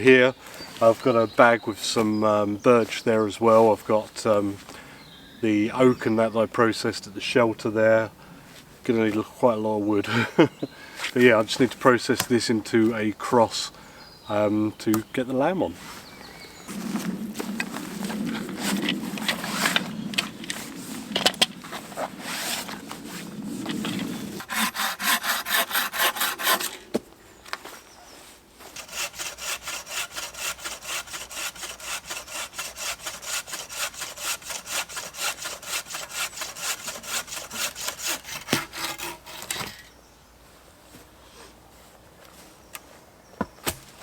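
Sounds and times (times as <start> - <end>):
hand saw cutting wood: 23.7 - 27.0, 28.7 - 39.8.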